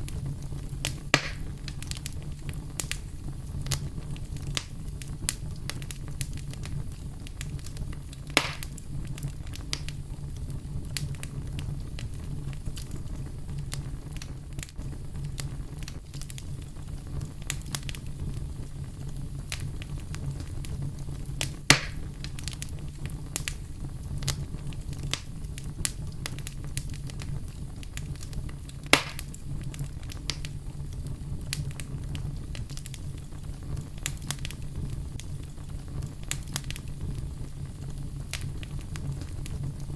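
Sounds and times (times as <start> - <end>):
fire crackling and popping: 0.0 - 39.9
wood fire rumbling: 0.0 - 39.9.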